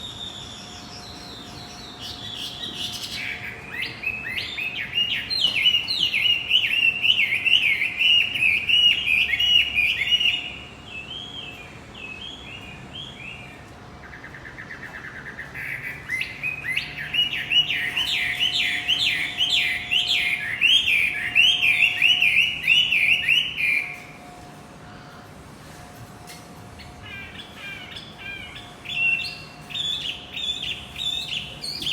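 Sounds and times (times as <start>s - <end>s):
bird chattering song: 0.1s - 24.1s, 26.8s - 31.9s
bird buzzy trill: 26.8s - 31.9s.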